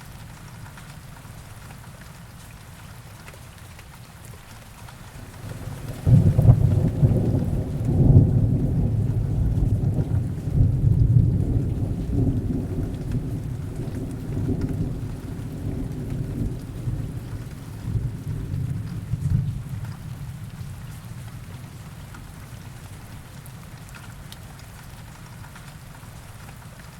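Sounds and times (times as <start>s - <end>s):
heavy rain: 0.0s - 26.9s
thunder rumbling: 5.1s - 21.5s.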